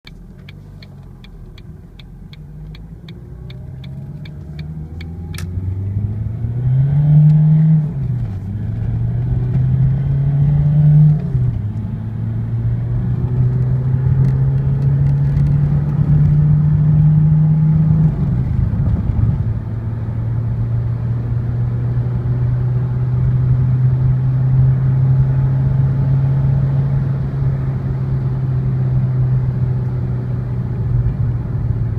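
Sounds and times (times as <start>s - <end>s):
regular ticking: 0.0s - 5.4s
car engine accelerating through gears: 0.1s - 31.9s.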